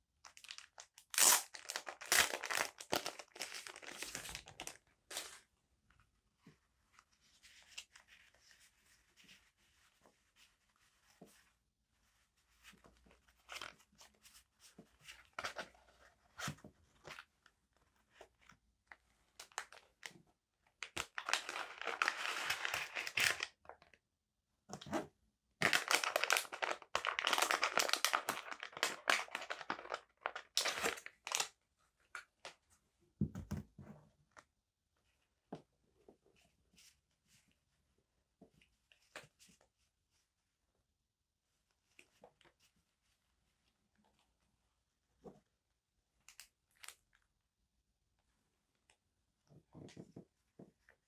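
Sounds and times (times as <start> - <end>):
packaging crinkling and tearing: 0.2 - 5.4, 20.8 - 23.6, 25.6 - 31.5
packaging tapping and rustling: 25.6 - 31.4.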